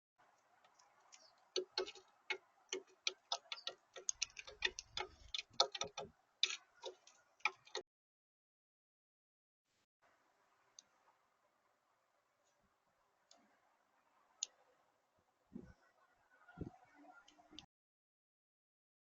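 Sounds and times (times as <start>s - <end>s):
birds pecking at a feeder: 0.2s - 7.8s.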